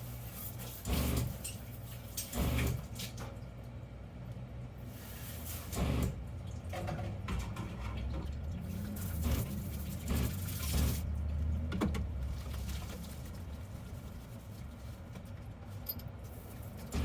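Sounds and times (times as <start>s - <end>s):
water running in sink: 4.9s - 11.6s.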